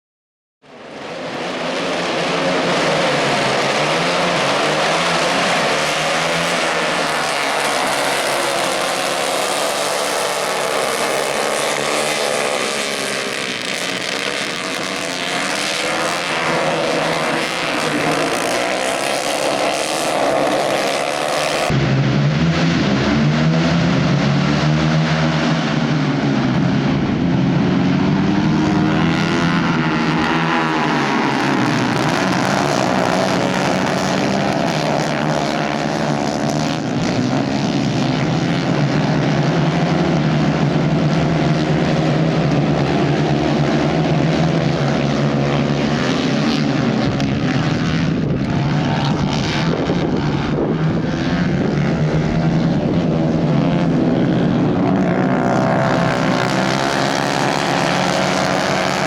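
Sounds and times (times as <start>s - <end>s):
racing kart engines: 0.7s - 59.0s.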